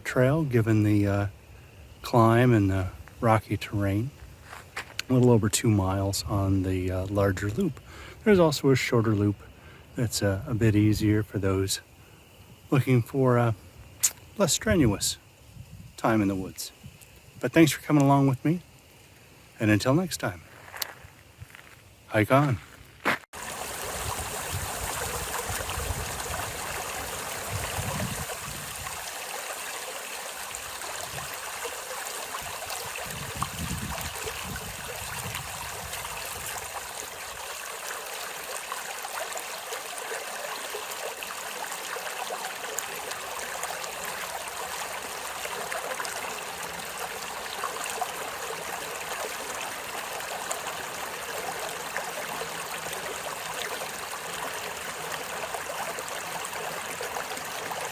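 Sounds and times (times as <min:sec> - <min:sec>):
running water rushing: 0:23.4 - 0:57.9.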